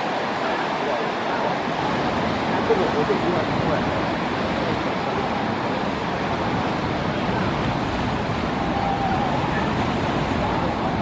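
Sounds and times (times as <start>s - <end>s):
ocean surf: 0.0s - 11.0s
wind at the shore: 0.0s - 11.0s.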